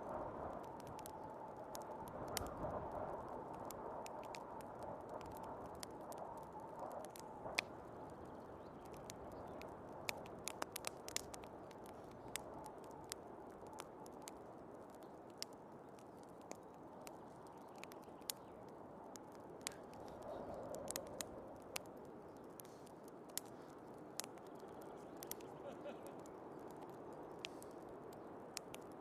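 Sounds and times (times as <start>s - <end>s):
rushing storm wind: 0.0s - 14.5s
wood fire crackling: 0.0s - 29.0s.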